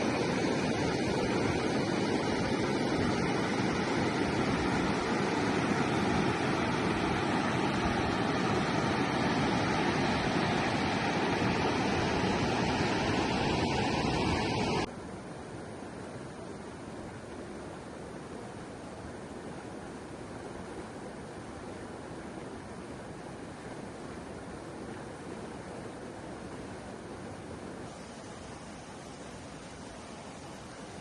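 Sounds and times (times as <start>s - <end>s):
rushing river water: 0.0s - 14.9s, 21.3s - 31.0s.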